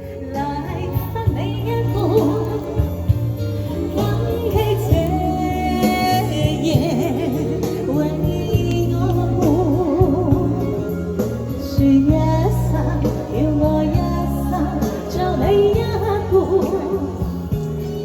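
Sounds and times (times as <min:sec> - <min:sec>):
karaoke backing track: 0:00.0 - 0:18.0
woman singing with vibrato: 0:00.0 - 0:18.0.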